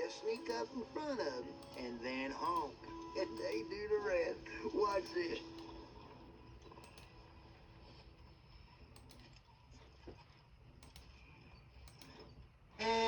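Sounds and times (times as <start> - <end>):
faint clicks: 8.9 - 9.5, 10.8 - 12.5.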